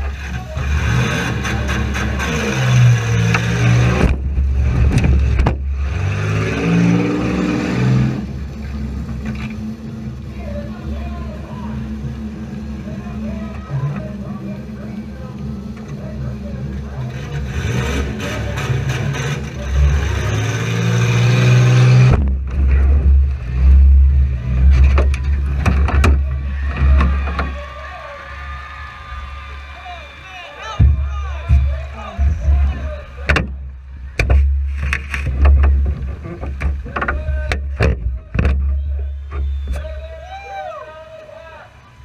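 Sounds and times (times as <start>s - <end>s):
heavy low rumble: 0.0s - 6.0s, 6.7s - 20.5s, 21.6s - 29.5s, 30.7s - 40.2s
car engine revving: 0.0s - 27.9s
sharp knocks and bangs: 3.2s - 6.0s, 21.8s - 23.1s, 30.8s - 39.5s.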